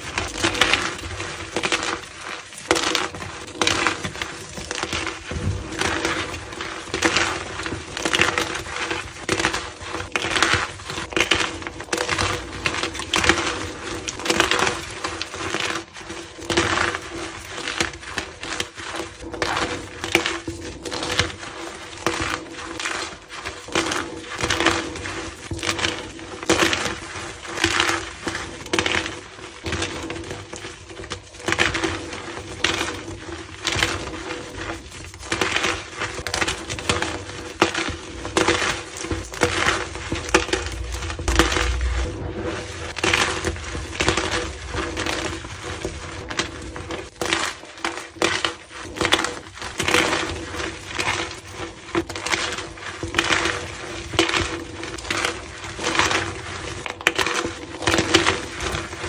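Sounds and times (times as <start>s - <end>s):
chalk being crushed: 34.5s - 48.9s.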